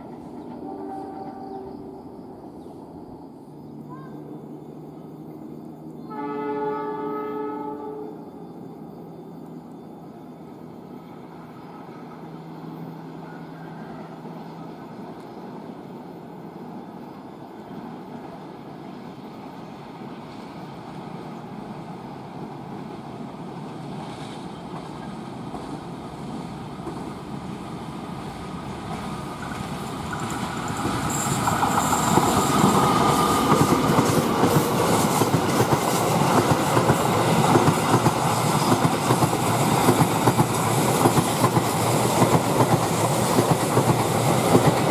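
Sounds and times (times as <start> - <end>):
train approaching and passing: 0.0 - 44.9
train wheels clacking over rail joints: 29.4 - 44.9.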